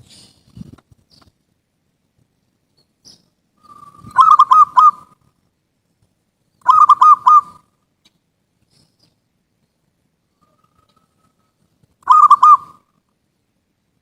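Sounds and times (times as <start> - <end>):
dove cooing: 3.6 - 5.2, 6.6 - 7.7, 10.4 - 12.9.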